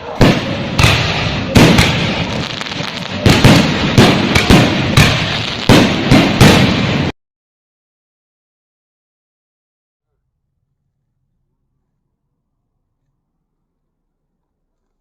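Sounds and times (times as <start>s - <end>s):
crackling hiss of fireworks: 0.0s - 7.1s
firework bangs: 0.0s - 7.1s.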